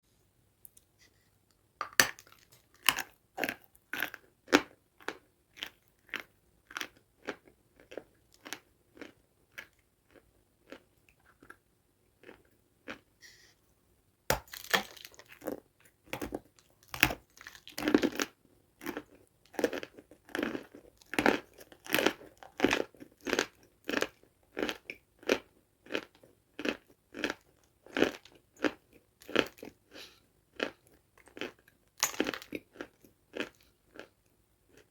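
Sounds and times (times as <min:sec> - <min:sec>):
person chewing crunchy food: 0:01.8 - 0:13.1, 0:14.3 - 0:34.9.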